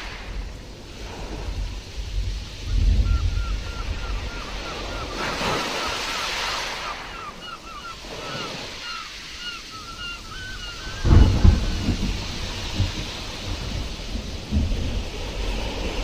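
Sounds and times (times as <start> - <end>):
bird chirping: 2.7 - 11.5.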